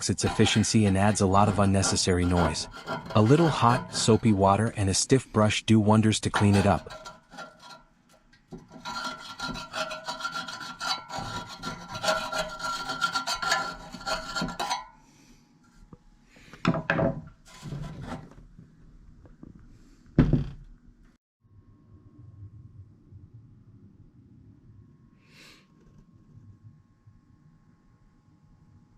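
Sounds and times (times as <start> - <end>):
stiff brush scrubbing fan blades: 0.0 - 7.8, 8.5 - 14.9.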